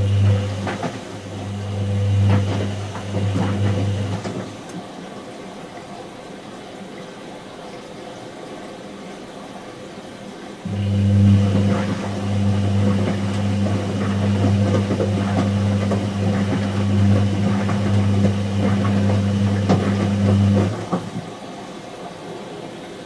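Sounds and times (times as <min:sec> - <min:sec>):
water gurgling and clicking: 0:00.0 - 0:04.8, 0:10.7 - 0:21.4
washing machine pump running: 0:00.0 - 0:04.9, 0:10.7 - 0:21.8.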